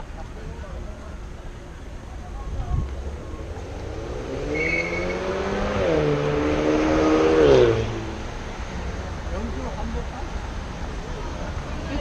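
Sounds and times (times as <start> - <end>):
vehicle engine accelerating past: 3.3 - 8.2.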